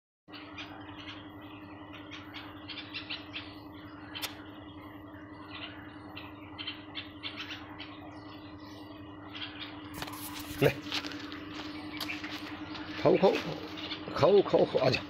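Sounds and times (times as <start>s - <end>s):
small birds chirping: 0.3s - 15.0s
steady low hum: 0.3s - 15.0s
sharp click: 4.2s - 4.4s.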